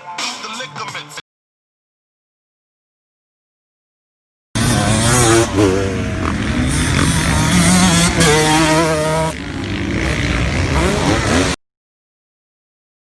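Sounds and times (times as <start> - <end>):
dirt bike engine revving: 4.6 - 11.6.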